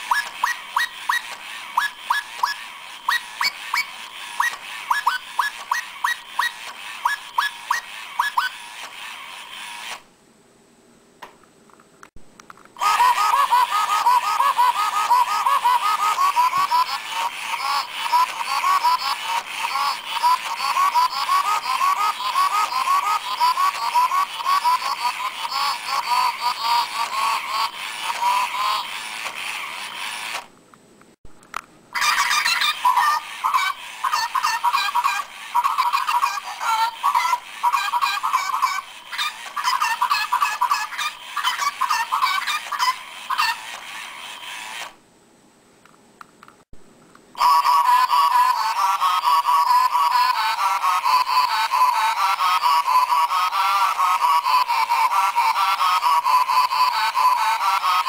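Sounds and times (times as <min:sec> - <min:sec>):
robot bird toy chirps: 0:00.0 - 0:10.0, 0:12.8 - 0:30.4, 0:32.0 - 0:44.9, 0:47.4 - 0:58.0.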